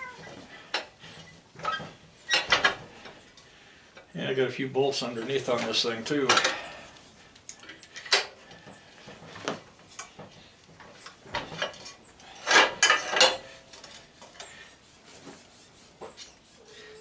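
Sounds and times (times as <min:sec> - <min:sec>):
metal parts clinking and clanking: 0:01.6 - 0:02.8, 0:11.0 - 0:14.5.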